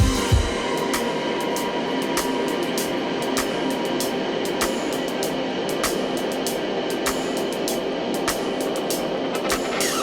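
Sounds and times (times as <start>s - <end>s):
kick drum: 0.0s - 0.7s
background music: 0.0s - 10.0s.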